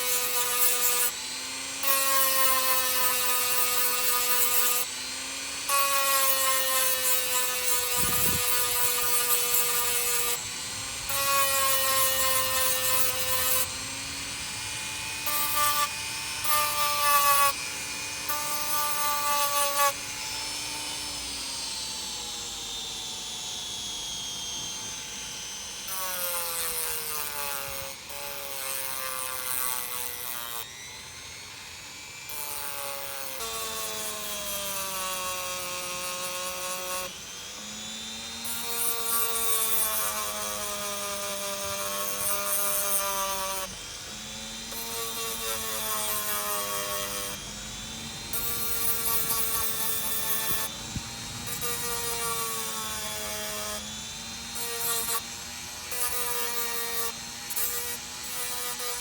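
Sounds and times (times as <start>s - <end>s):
power tool grinding metal: 0.0s - 59.0s.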